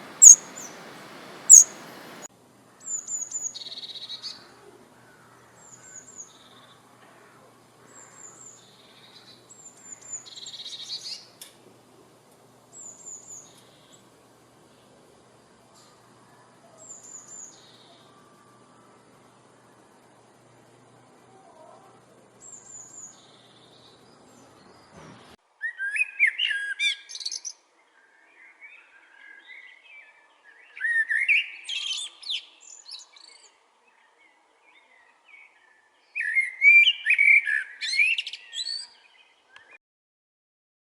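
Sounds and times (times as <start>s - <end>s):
soft chirps: 0.0s - 4.1s
songbird warbling: 0.0s - 6.6s
quiet bird twittering: 0.0s - 11.4s, 21.2s - 39.8s
faint background hum: 0.0s - 25.4s.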